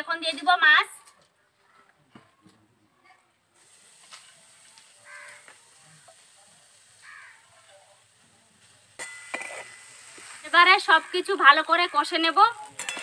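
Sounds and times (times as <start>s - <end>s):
fish sizzling in hot oil: 3.6s - 13.0s.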